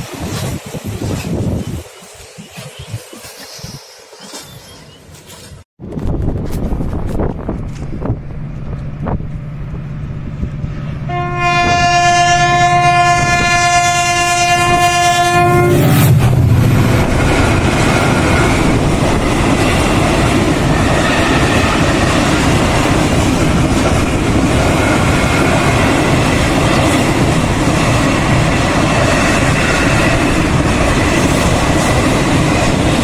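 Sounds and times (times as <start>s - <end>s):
train wheels rumbling on rails: 0.0s - 33.0s
train horn blast: 10.9s - 16.8s.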